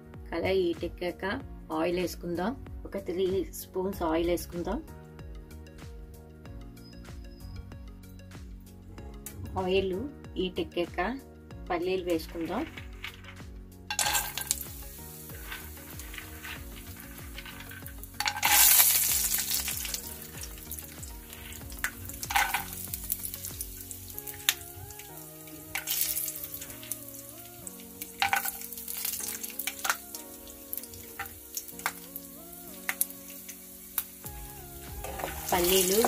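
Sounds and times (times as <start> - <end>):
soft background music: 0.0 - 36.0
peanuts sizzling in oil: 11.9 - 36.0.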